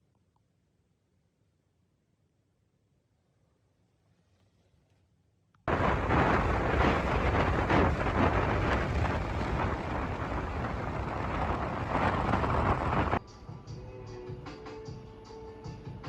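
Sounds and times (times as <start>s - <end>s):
heavy low rumble: 5.7s - 13.2s
wind buffeting microphone: 5.7s - 13.2s.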